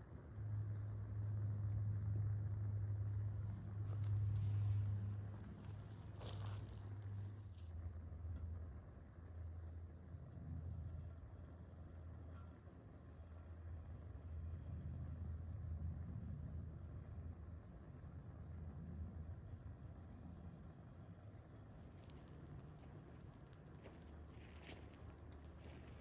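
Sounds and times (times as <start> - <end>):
insects trilling: 0.4 - 10.9, 21.5 - 26.0
steady low rumble: 1.2 - 7.8.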